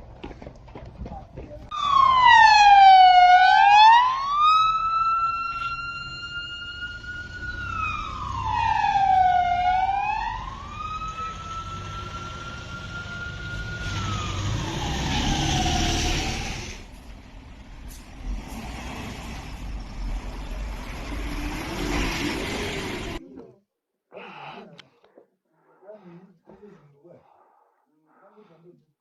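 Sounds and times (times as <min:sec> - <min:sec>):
emergency vehicle siren wailing: 0:01.7 - 0:16.9
vehicle noise rumble: 0:04.8 - 0:23.2.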